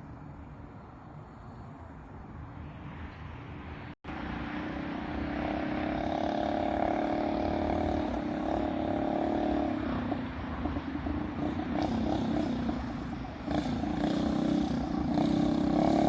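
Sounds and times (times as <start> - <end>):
mini bike engine running: 4.6 - 10.2, 11.0 - 16.0.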